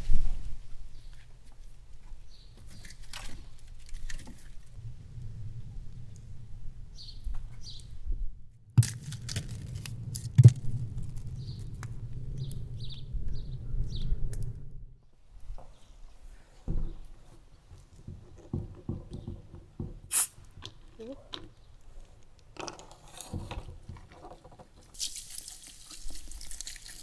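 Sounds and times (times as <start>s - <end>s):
low rumble: 4.7s - 15.0s
bird chirping: 6.9s - 8.0s, 11.3s - 14.6s.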